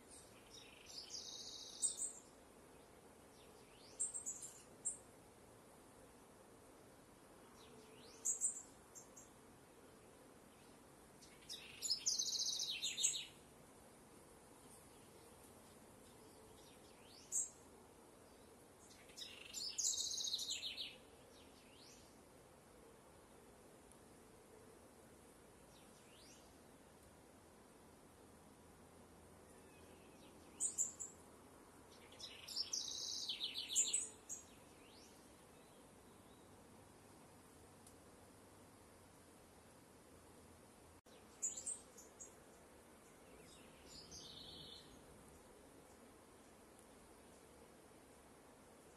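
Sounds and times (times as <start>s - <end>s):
faint outdoor hiss: 0.0s - 48.9s
songbirds chirping: 0.0s - 48.9s
birds chirping and trilling: 32.0s - 35.2s.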